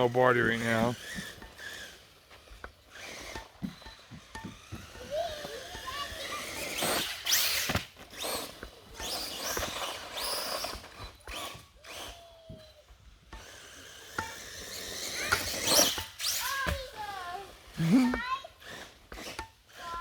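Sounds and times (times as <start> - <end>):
tyre and chassis noise: 0.0 - 11.8
rc truck motor whine: 0.0 - 20.0.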